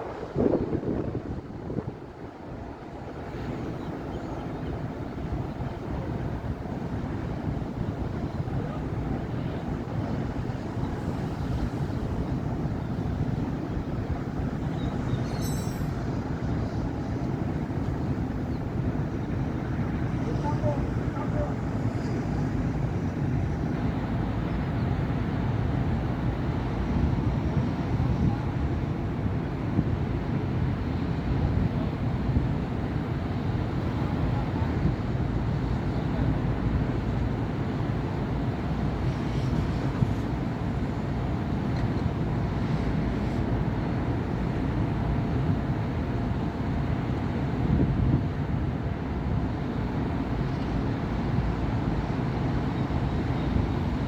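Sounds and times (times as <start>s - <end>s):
city road traffic rumble: 0.0s - 54.0s.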